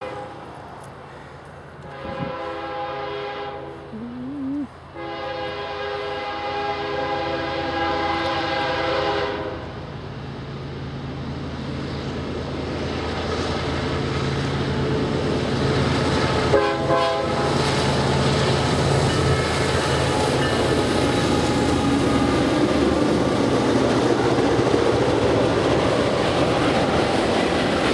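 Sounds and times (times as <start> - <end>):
train rolling on tracks: 0.0 - 3.8, 4.8 - 27.9
locomotive horn blasts: 1.8 - 3.9, 5.0 - 9.7, 16.5 - 17.6.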